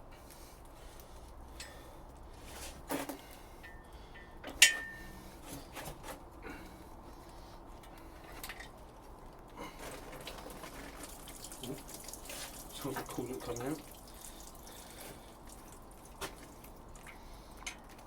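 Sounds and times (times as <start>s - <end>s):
metal tools clinking and knocking: 4.5s - 5.1s.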